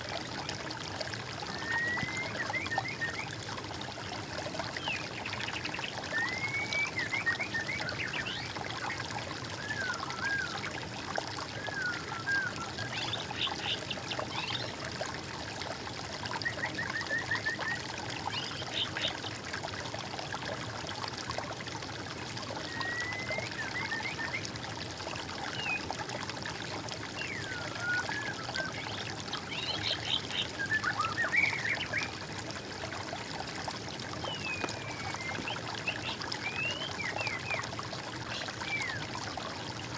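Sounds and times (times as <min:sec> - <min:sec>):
water trickling and pouring: 0:00.0 - 0:39.9
songbirds whistling and trilling: 0:01.4 - 0:03.4, 0:04.8 - 0:10.7, 0:11.5 - 0:14.8, 0:16.4 - 0:19.2, 0:22.5 - 0:24.6, 0:25.4 - 0:25.9, 0:27.1 - 0:32.2, 0:34.2 - 0:39.1.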